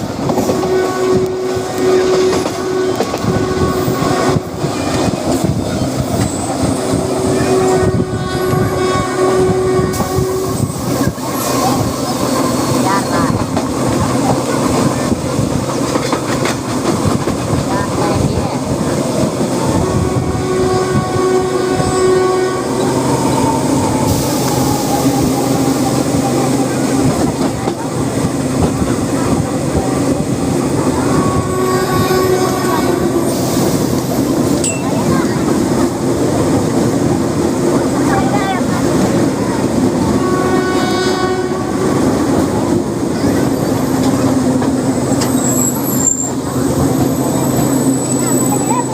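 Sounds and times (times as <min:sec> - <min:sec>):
train rumbling on rails: 0:00.0 - 0:48.9
train horn: 0:00.4 - 0:05.1, 0:07.2 - 0:10.8, 0:19.6 - 0:27.1, 0:30.9 - 0:33.6, 0:40.0 - 0:42.4.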